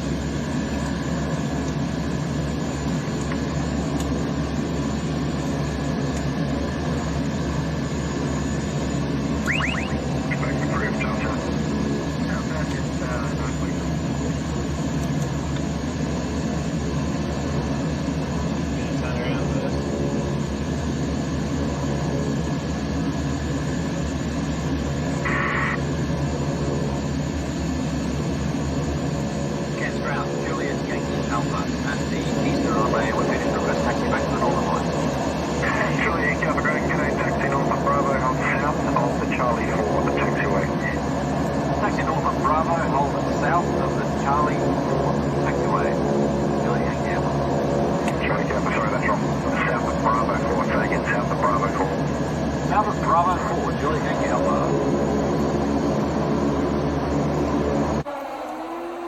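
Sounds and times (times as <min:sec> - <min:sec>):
propeller aircraft engine running: 0:00.0 - 0:59.0
short high beep: 0:09.4 - 0:10.0.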